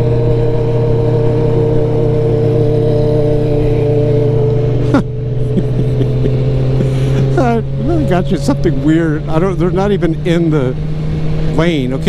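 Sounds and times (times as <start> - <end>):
road noise: 0.0 - 12.0
vehicle engine drone: 0.0 - 12.0.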